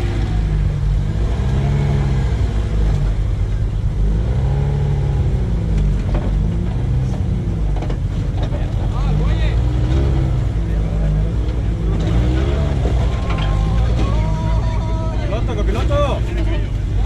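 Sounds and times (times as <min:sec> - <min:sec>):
engine revving: 0:00.0 - 0:17.0
steady low rumble: 0:00.0 - 0:17.0.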